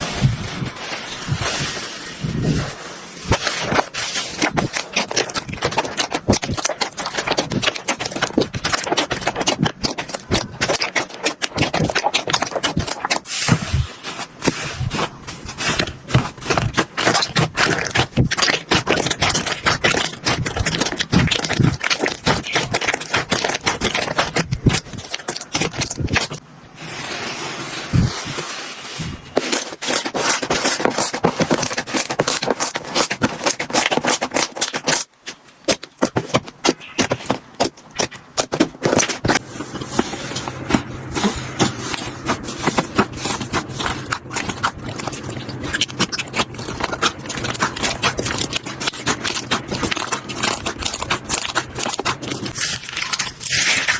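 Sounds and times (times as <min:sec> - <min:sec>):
slime crackling and popping: 0:03.3 - 0:26.4, 0:29.1 - 0:53.9.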